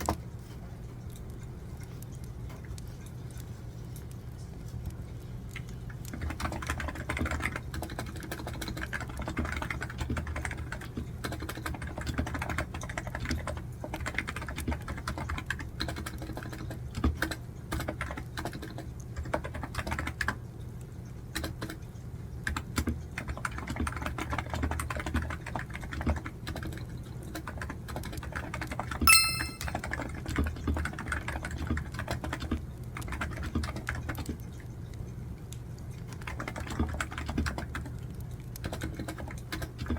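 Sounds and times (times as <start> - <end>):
computer keyboard typing: 6.1 - 20.3, 27.4 - 29.7
bright ringing tone: 29.1 - 29.8.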